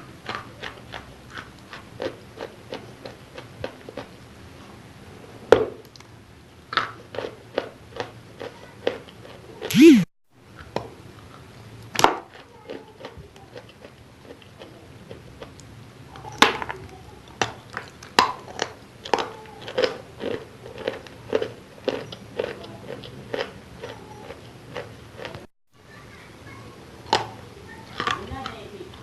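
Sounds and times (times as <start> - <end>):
person chewing crunchy chalk: 0.2 - 4.2, 6.8 - 10.1, 18.6 - 25.5.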